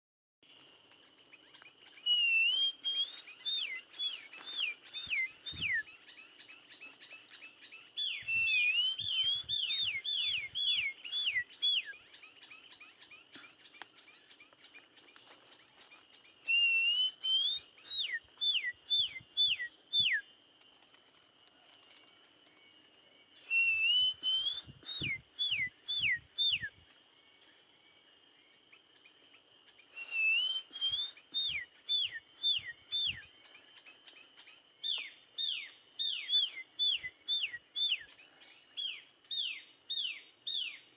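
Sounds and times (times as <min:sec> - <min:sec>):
bird singing whistled phrases: 0:02.0 - 0:06.2, 0:08.0 - 0:12.1, 0:16.4 - 0:20.3, 0:23.4 - 0:26.8, 0:30.0 - 0:33.4, 0:34.8 - 0:38.2.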